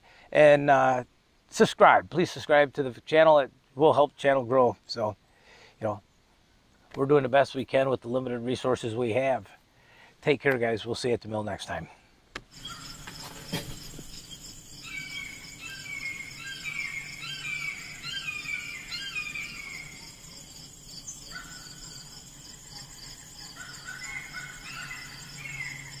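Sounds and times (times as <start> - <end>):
insect trill: 12.5 - 26.0
birds whistling phrases: 14.2 - 20.2.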